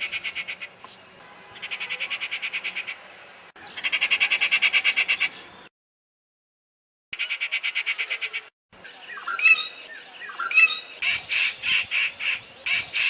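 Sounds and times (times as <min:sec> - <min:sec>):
bird rapid chattering call: 0:09.1 - 0:13.0.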